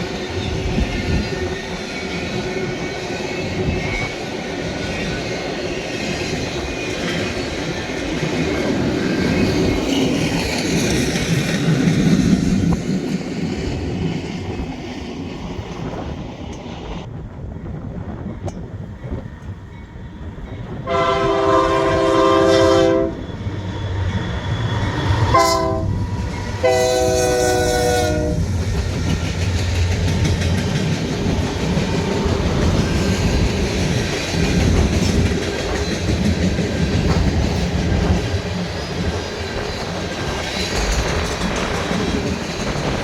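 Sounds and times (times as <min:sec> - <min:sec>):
train rumble: 0:00.0 - 0:43.0
train air horn blasts: 0:20.8 - 0:23.3, 0:25.3 - 0:28.5
wheels clacking on rail joints: 0:24.0 - 0:43.0.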